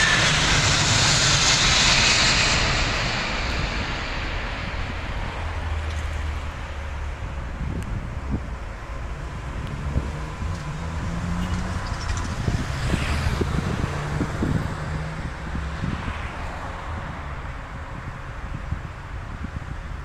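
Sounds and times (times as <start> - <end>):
road traffic engine hum: 0.0 - 20.0
vehicle passing by: 9.1 - 17.7.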